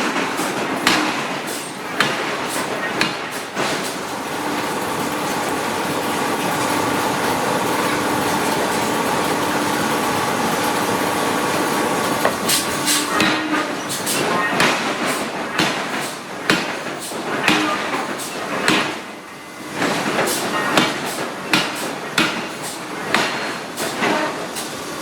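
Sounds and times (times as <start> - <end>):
machinery running with whine: 4.0 - 15.6.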